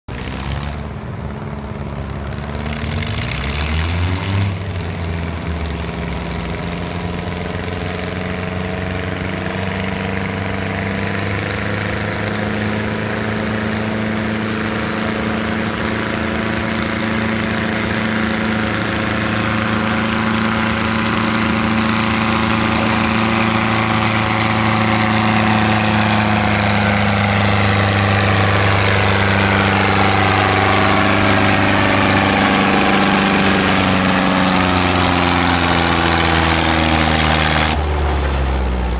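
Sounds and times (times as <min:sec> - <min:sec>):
tractor engine running: 0:00.1 - 0:38.9.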